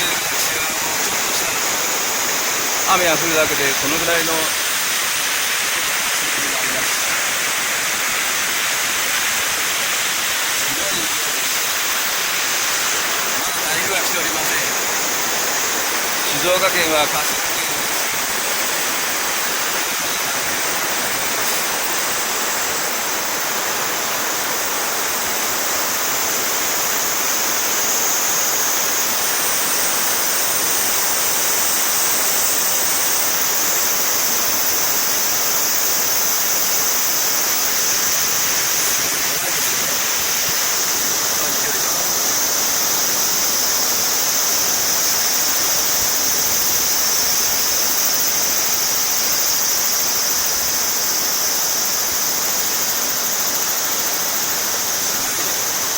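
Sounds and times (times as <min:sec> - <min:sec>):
flood water rushing: 0:00.0 - 0:55.9.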